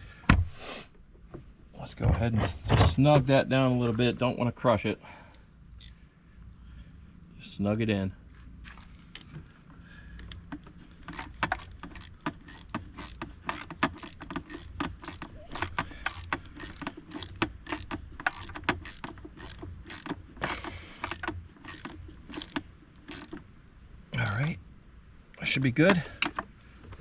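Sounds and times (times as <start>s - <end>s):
hand tool clicking: 11.0s - 23.4s.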